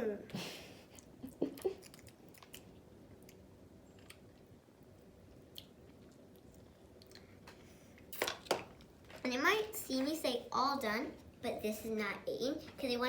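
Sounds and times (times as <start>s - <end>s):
child chewing: 0.8s - 9.0s.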